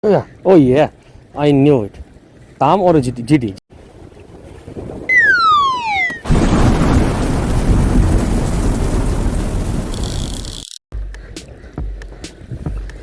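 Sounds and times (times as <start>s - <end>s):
falling whistle: 5.1s - 6.3s
thunder-like rumbling rush: 6.2s - 10.5s.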